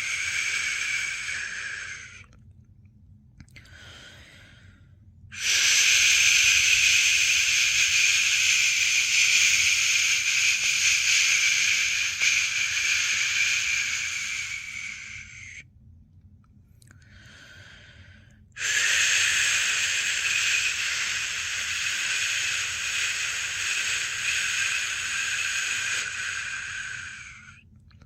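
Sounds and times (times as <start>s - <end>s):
person shushing: 0.0s - 2.3s, 5.4s - 15.6s, 18.6s - 27.6s.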